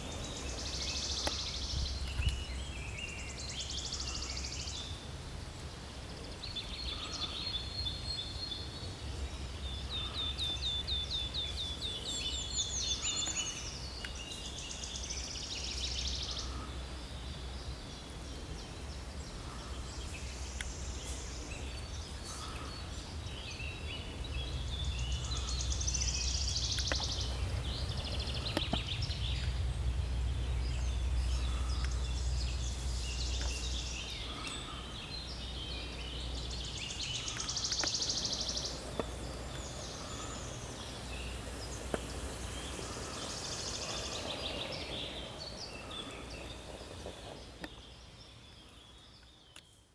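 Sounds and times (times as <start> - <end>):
songbirds singing trills: 0.0 - 49.9
low rumble: 23.4 - 36.8.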